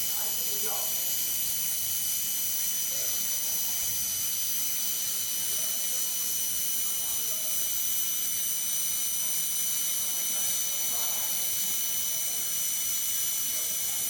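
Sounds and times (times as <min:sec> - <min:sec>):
welding machine hiss: 0:00.0 - 0:14.0.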